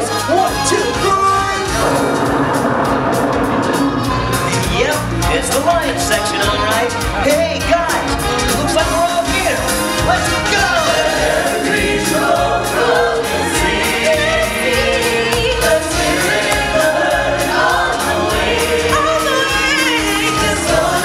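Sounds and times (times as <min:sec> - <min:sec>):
band playing a steady beat: 0:00.0 - 0:21.0
group singing: 0:01.7 - 0:04.9, 0:10.4 - 0:21.0.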